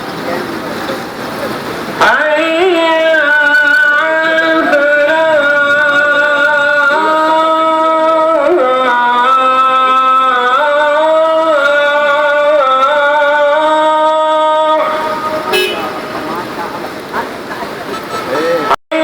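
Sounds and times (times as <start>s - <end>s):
person singing slow melody: 2.0s - 16.2s.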